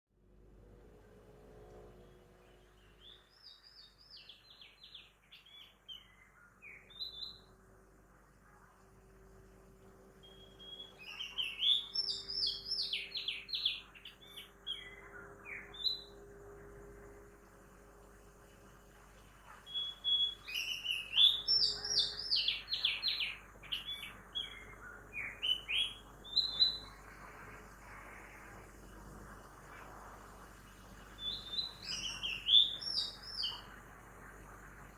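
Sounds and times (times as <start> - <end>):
faint town traffic hum: 0.2 - 3.0
bird singing bright notes: 10.2 - 16.1, 19.6 - 27.0, 31.2 - 33.7.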